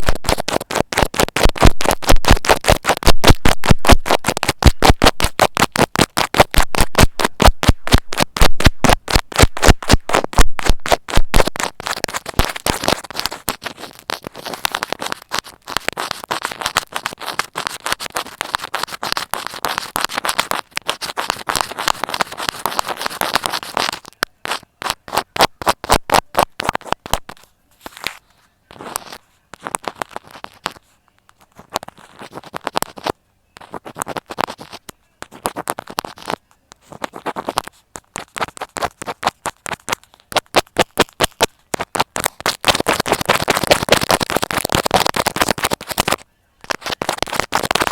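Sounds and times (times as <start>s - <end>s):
needle scratching through material: 0.0s - 47.9s.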